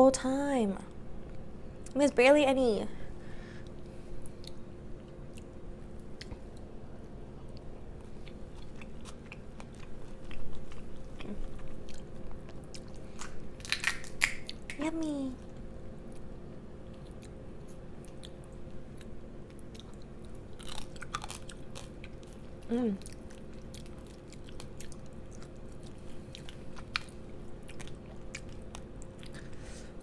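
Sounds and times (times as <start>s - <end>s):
faint steady hum: 0.0s - 30.0s
mouth chewing food: 7.4s - 14.8s, 15.4s - 29.6s.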